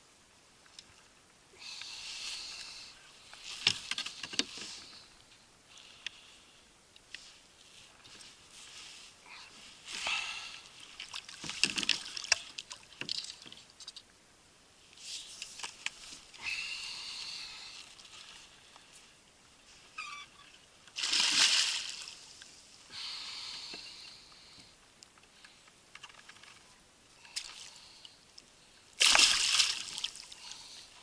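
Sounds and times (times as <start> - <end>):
water splashing at kayak: 10.8 - 13.4, 20.9 - 22.3, 29.0 - 30.5.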